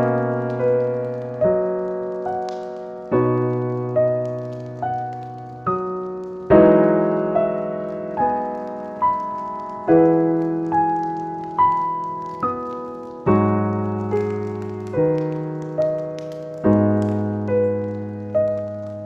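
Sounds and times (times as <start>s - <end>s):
slow gentle piano music: 0.0s - 19.0s.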